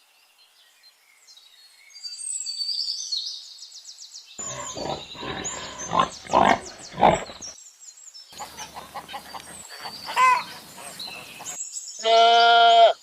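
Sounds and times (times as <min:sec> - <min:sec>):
pig grunting and squealing: 0:04.4 - 0:07.6.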